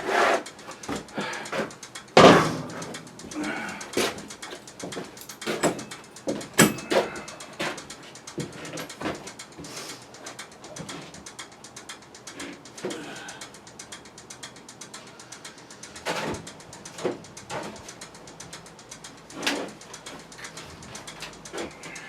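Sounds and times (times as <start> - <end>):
metal parts clicking and clinking: 0.5 - 22.0
scraping metal clunk: 2.2 - 3.0.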